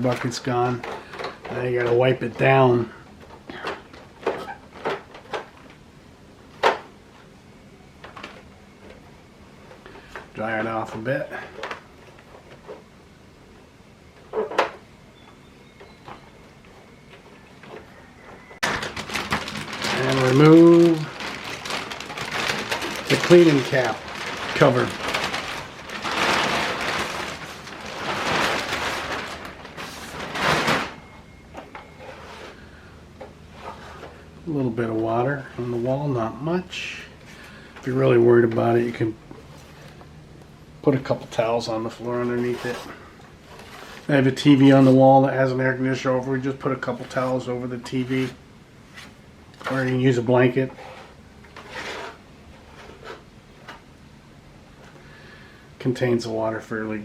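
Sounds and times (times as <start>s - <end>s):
plastic cover scraping and rustling: 0.0s - 5.9s, 14.1s - 40.2s, 40.8s - 54.0s
objects knocking and clattering: 17.6s - 32.0s.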